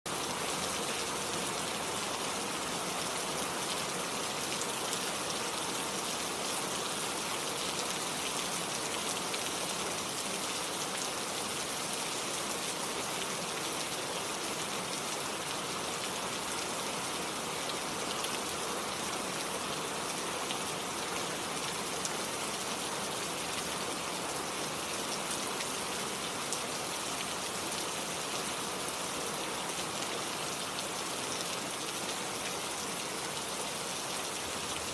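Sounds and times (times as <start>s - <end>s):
steady rain falling: 0.1s - 34.9s
stream flowing: 0.1s - 34.9s.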